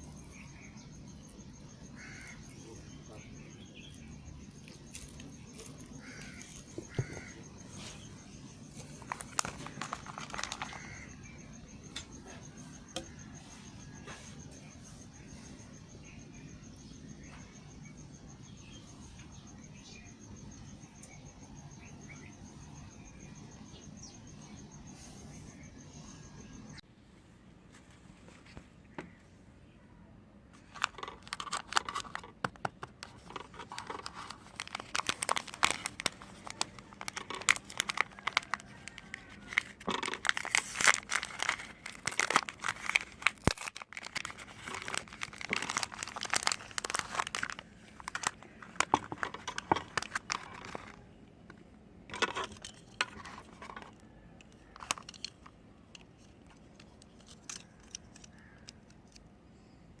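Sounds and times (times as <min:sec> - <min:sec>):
soap packaging crinkling and tearing: 0:01.3 - 0:11.7, 0:30.6 - 0:51.1, 0:52.1 - 0:59.3.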